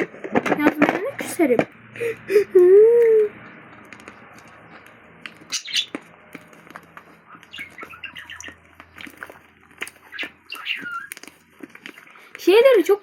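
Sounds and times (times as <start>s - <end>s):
birds chirping: 0.6s - 12.7s
slime squelching and clicking: 3.4s - 12.4s.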